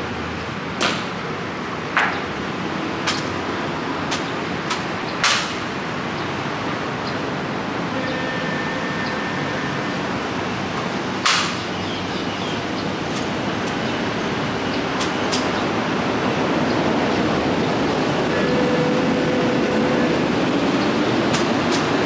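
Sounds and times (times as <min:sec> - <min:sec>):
short sharp claps: 0:00.8 - 0:01.4, 0:02.0 - 0:02.5, 0:03.1 - 0:03.4, 0:04.1 - 0:05.7, 0:11.2 - 0:11.7.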